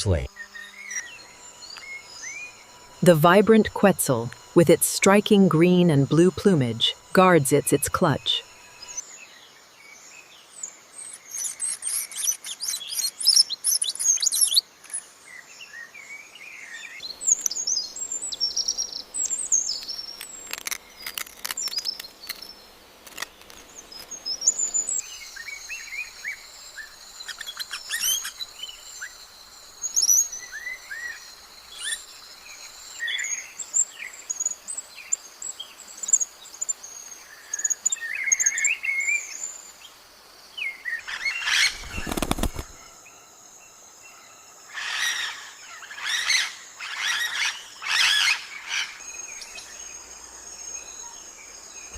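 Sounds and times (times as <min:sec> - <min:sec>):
steady high hum: 0:00.0 - 0:09.0
birds chirping and calling: 0:41.0 - 0:42.9.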